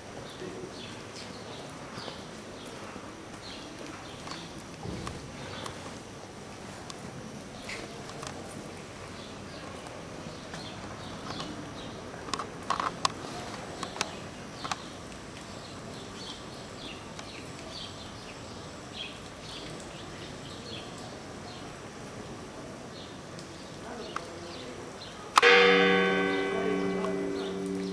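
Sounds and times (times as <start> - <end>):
steady background hiss: 0.0 - 27.9.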